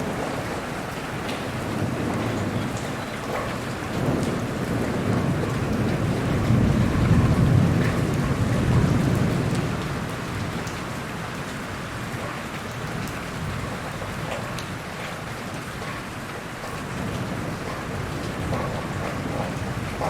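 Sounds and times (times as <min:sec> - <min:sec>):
low thunder rumble: 0:00.0 - 0:15.0, 0:16.7 - 0:20.0
steady rain: 0:00.0 - 0:20.0.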